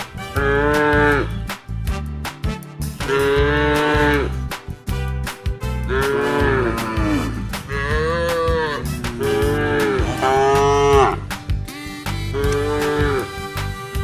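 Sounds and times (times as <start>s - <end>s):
background music with steady beat: 0.0s - 14.0s
cattle mooing: 0.3s - 1.4s, 3.0s - 4.4s, 5.8s - 11.3s, 12.3s - 13.4s.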